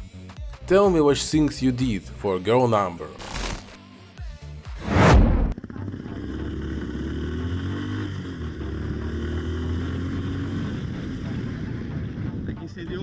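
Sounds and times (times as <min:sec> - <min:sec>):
loud falling sweep: 0:04.7 - 0:05.6
motorcycle engine running: 0:05.6 - 0:12.4.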